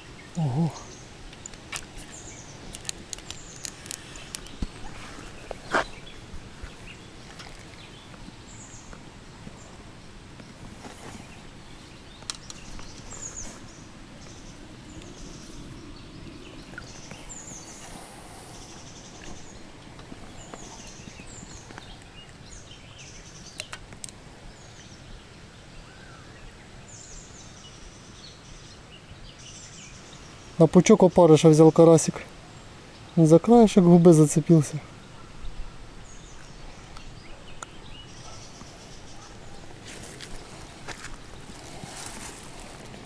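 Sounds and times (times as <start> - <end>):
outdoor background hiss: 0.0 - 43.0
small birds chirping: 0.0 - 43.0
sharp clicks: 2.7 - 4.7.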